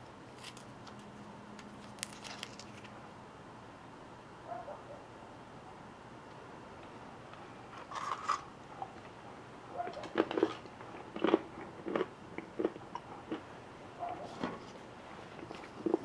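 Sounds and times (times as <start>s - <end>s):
chewing crunchy chocolate: 9.8s - 16.0s.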